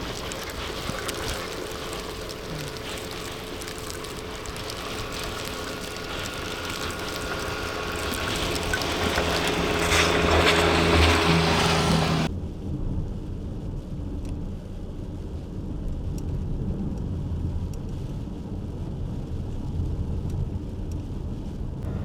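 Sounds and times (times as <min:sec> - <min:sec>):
low engine hum: 0:00.0 - 0:22.0
wind blowing hard: 0:00.0 - 0:22.0.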